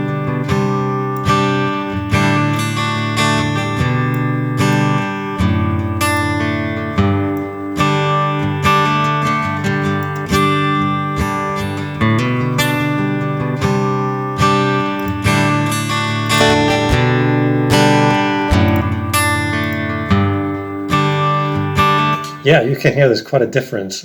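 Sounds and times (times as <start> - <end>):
acoustic guitar strumming chords: 0.0 - 11.5, 15.3 - 22.4.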